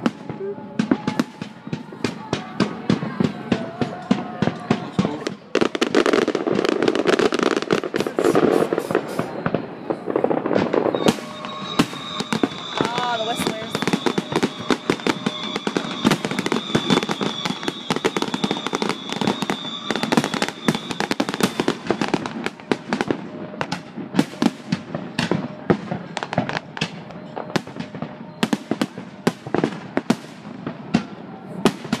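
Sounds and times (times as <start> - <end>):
high steady whistle: 0.0 - 2.4, 8.2 - 29.9
fireworks crackling and popping: 0.0 - 32.0.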